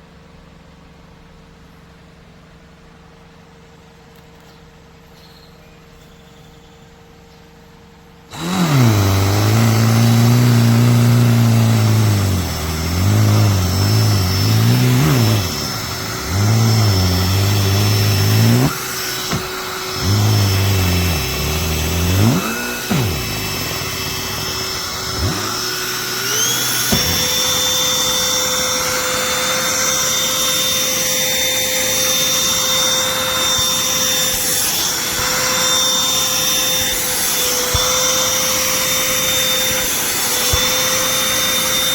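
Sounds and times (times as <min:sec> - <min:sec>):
handheld vacuum running: 0:08.3 - 0:41.9.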